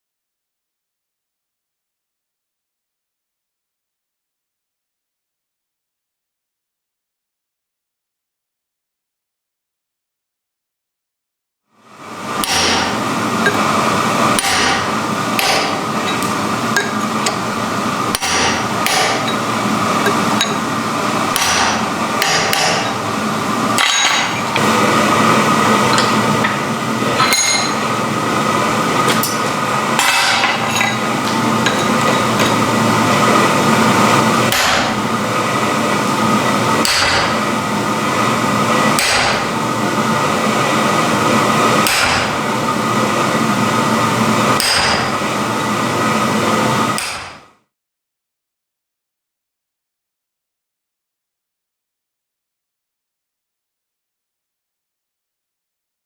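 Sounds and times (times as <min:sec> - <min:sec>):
steady background noise: 0:11.9 - 0:47.0.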